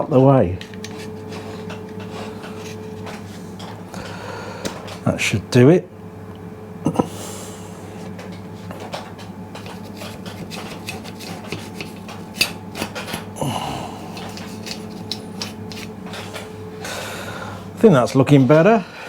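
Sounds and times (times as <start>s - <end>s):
hand tool scraping metal: 0.8s - 3.4s, 9.6s - 13.3s, 14.0s - 16.5s.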